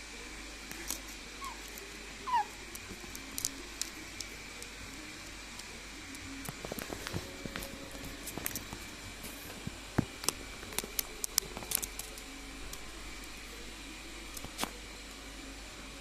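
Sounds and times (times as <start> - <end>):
parrot squeaks: 1.4 - 1.6, 2.2 - 2.6.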